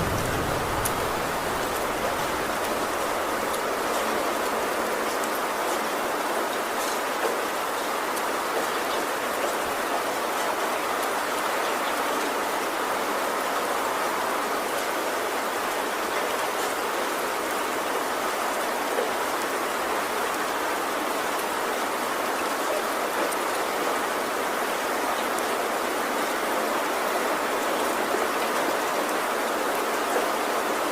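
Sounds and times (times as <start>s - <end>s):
heavy rain hissing: 0.0s - 5.0s
raindrop ticks: 0.0s - 5.4s.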